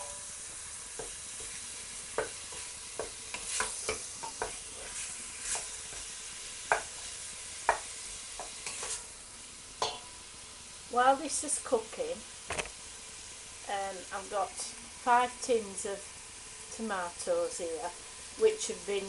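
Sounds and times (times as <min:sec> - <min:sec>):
utensil scraping pan: 0:00.0 - 0:07.8, 0:08.4 - 0:09.1
chicken sizzling in hot oil: 0:00.0 - 0:19.0.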